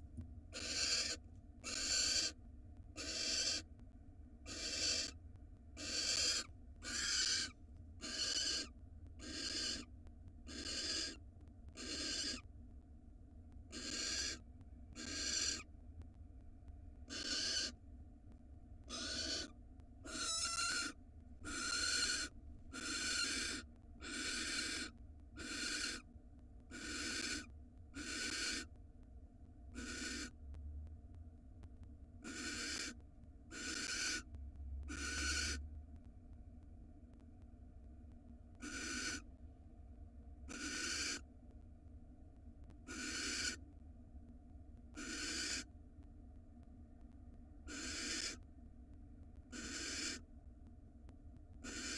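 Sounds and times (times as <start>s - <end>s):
owl hissing calls: 0.6s - 2.4s, 3.0s - 3.7s, 4.5s - 5.1s, 5.8s - 9.9s, 10.5s - 11.2s, 11.8s - 12.4s, 13.7s - 14.4s, 15.0s - 15.7s, 17.1s - 17.8s, 18.9s - 26.0s, 26.7s - 28.7s, 29.8s - 30.3s, 32.2s - 34.3s, 34.9s - 35.6s, 38.6s - 39.2s, 40.5s - 41.2s, 42.9s - 43.6s, 45.0s - 45.7s, 47.7s - 48.4s, 49.5s - 50.2s, 51.6s - 51.9s.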